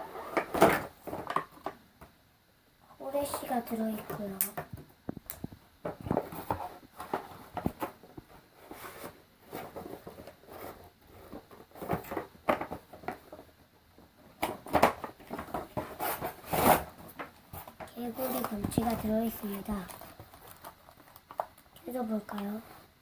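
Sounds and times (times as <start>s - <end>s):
toy packaging rustling: 17.1s - 22.6s.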